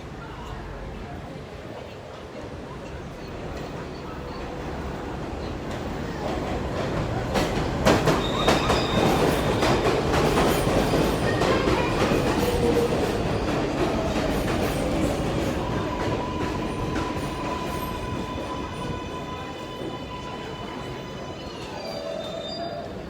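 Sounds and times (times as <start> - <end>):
train wheels clacking over rail joints: 5.6 - 17.9
train wheels squealing: 7.9 - 23.0.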